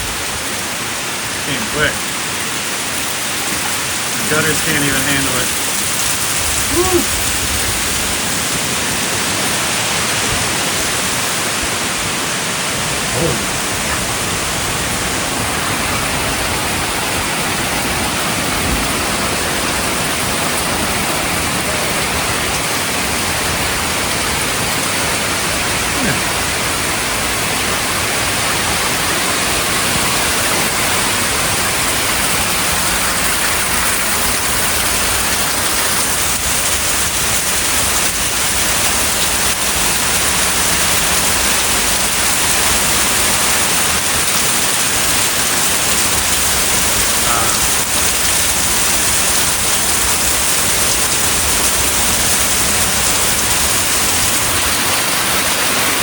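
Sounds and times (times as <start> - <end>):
torrential rain pouring: 0.0 - 56.0.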